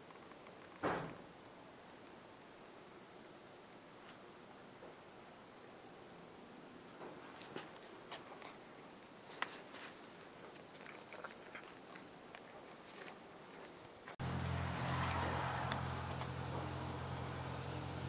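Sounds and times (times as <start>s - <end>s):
crickets chirping: 0.0s - 0.7s, 2.9s - 3.7s, 5.4s - 6.2s, 7.9s - 18.0s
low hum with hiss: 14.2s - 18.0s.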